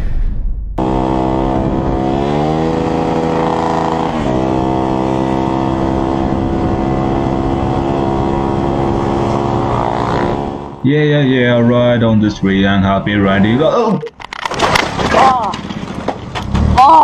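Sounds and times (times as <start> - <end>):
motorcycle engine revving high: 0.8 - 10.9.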